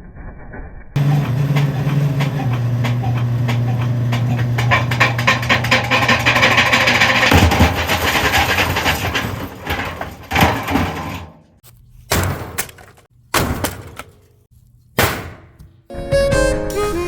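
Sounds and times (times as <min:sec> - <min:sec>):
washing machine banging and rattling: 0:01.0 - 0:14.3, 0:15.0 - 0:15.6
loud crashes: 0:04.8 - 0:11.3.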